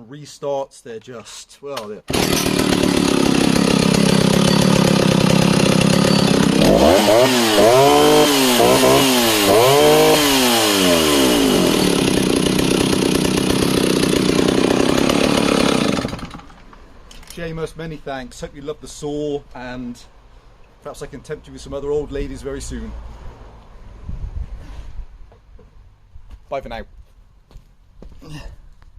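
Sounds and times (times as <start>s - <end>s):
chainsaw idling and revving: 2.1s - 16.8s.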